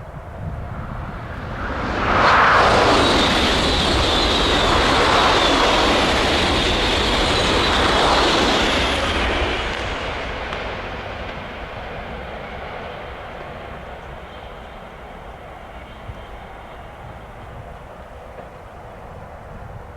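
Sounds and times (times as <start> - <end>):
train wheels rushing on rail: 0.0 - 19.9
thin high whine: 1.1 - 9.9.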